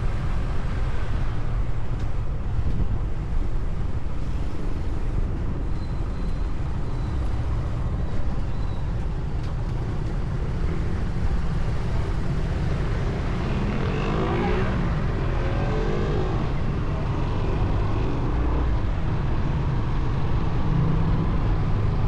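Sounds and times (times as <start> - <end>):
motorcycle road noise: 0.0 - 22.0.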